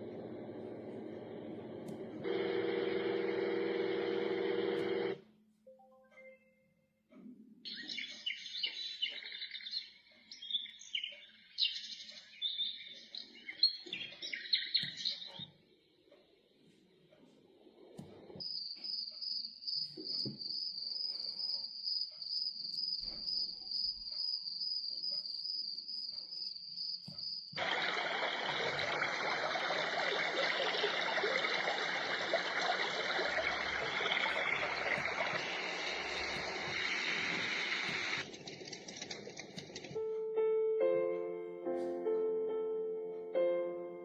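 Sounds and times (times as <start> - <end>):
cricket chirping from small speaker: 18.4 - 38.3
white noise hiss: 27.6 - 38.2.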